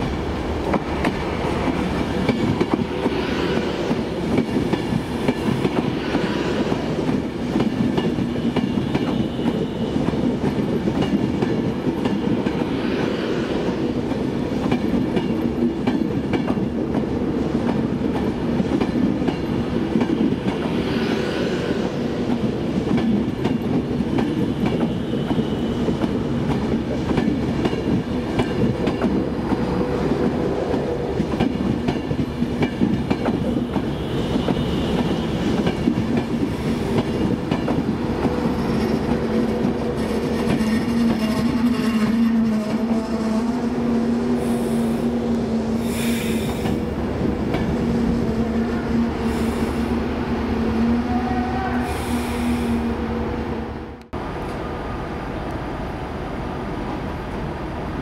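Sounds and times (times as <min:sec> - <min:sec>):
train low rumble: 0:00.0 - 0:58.0.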